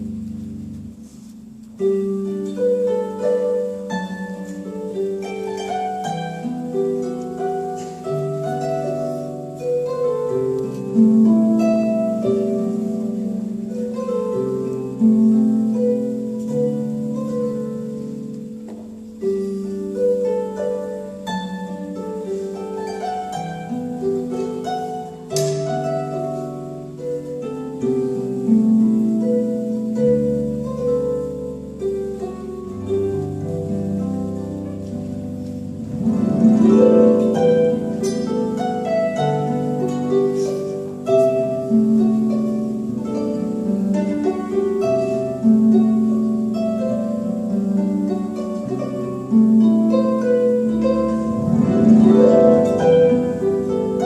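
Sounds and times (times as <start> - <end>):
harp music: 0.0 - 54.0.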